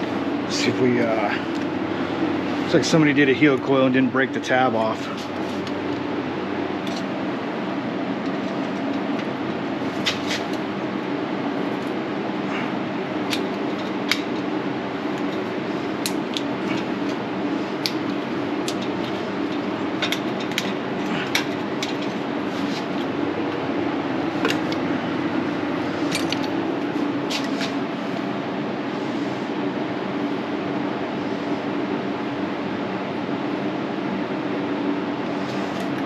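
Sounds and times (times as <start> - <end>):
steady mechanical hum: 0.0 - 36.0
hand tools tapping on metal: 17.8 - 23.0.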